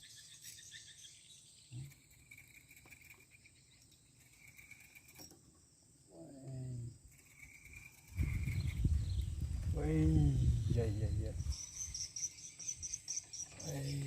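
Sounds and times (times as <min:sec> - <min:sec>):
faint insects chirring: 0:00.0 - 0:14.0.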